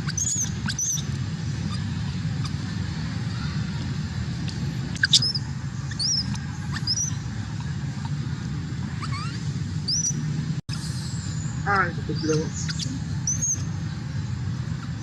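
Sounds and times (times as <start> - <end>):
steady low rumble: 0.0 - 15.0
high-pitched upward squeaks: 9.0 - 11.0.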